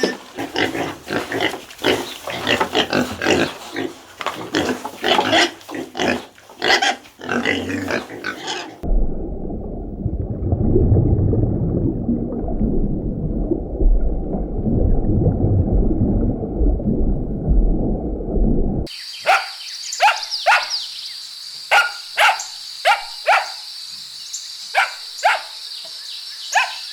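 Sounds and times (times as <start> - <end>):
pigs oinking and squealing: 0.0 - 8.8
muffled low rumble: 8.8 - 18.9.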